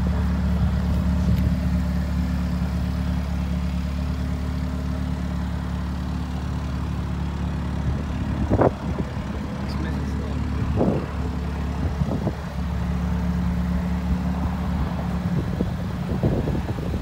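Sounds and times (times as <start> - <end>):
car engine at low revs: 0.0 - 17.0.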